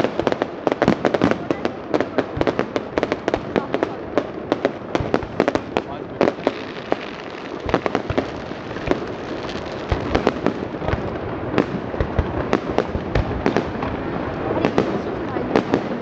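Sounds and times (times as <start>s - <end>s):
fireworks bangs: 0.0s - 16.0s
rumbling fireworks bursts: 0.0s - 16.0s.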